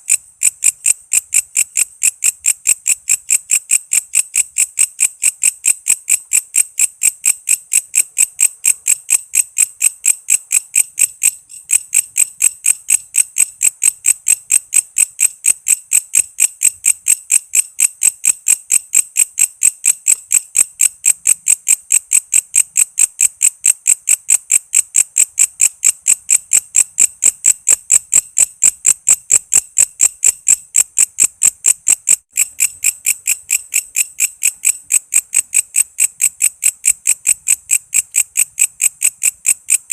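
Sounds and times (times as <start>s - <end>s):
katydid shrill chirping: 10.7s - 12.0s.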